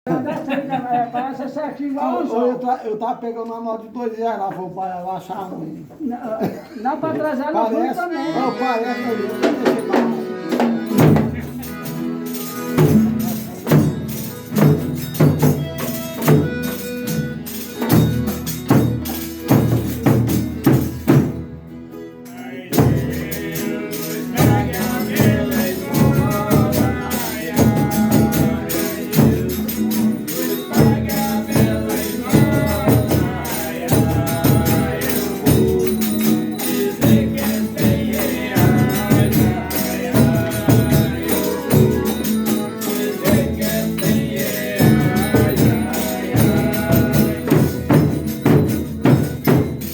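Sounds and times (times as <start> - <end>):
tambourine-led instrumental beat: 9.0 - 49.9
group of voices singing: 22.3 - 49.6.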